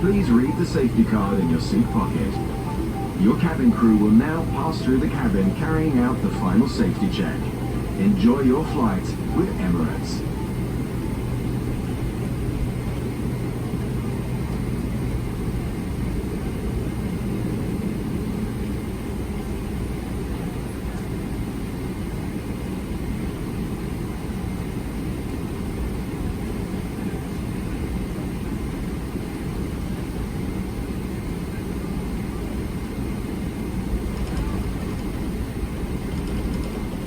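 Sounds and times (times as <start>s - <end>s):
airplane cabin low rumble: 0.0s - 12.3s
faint hum: 0.0s - 12.6s.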